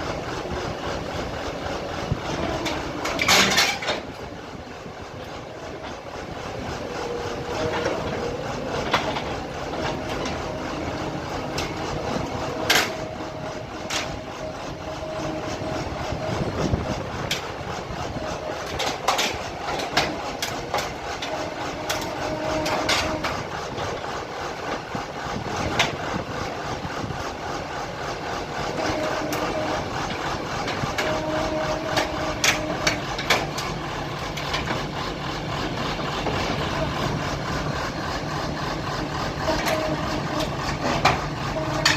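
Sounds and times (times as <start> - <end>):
drilling rig engine running: 0.0 - 41.9.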